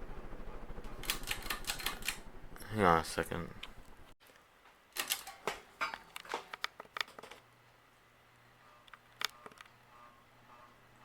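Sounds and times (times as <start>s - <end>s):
fan motor humming: 0.0s - 4.1s.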